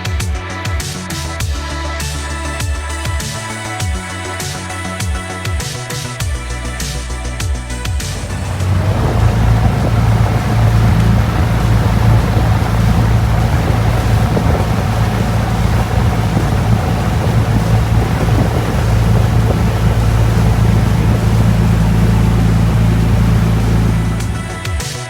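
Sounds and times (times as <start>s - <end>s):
wind noise: 8.0s - 24.8s
boat engine droning: 8.0s - 25.0s
rushing water: 8.0s - 25.0s.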